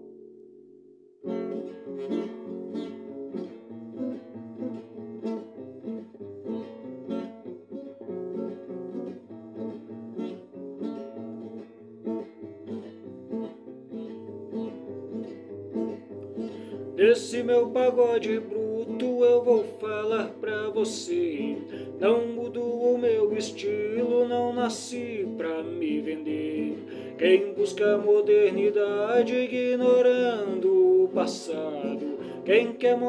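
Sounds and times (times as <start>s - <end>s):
guitar chord ringing: 0.0s - 3.4s
acoustic guitar melody: 0.0s - 33.0s.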